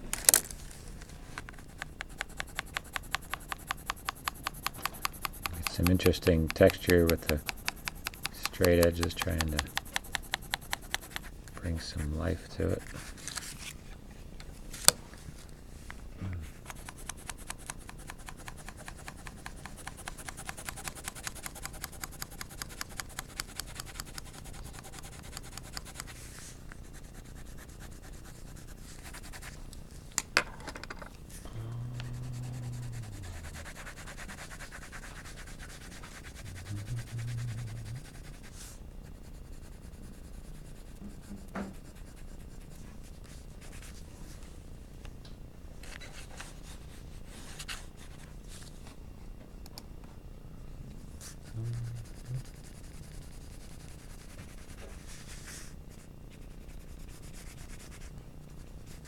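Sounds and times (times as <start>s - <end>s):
pencil shading on paper: 1.6s - 13.0s, 16.6s - 29.5s, 32.0s - 43.9s, 51.2s - 58.1s, 58.8s - 59.0s.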